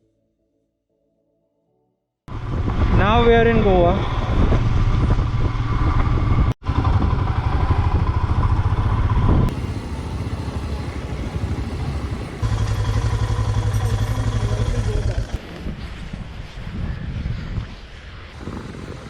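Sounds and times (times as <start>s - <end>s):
motorcycle engine rumble: 2.3s - 16.0s
road and wind noise: 2.3s - 19.0s.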